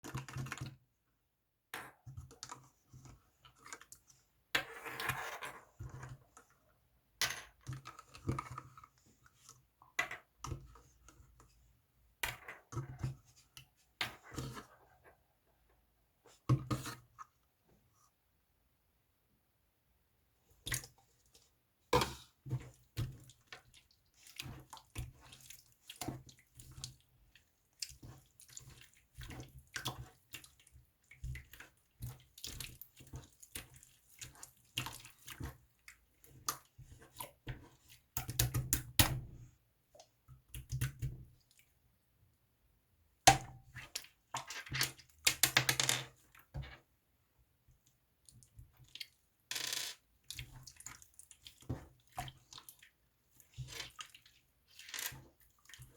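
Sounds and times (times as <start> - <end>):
slime squelching: 20.5 - 41.7, 50.1 - 55.9.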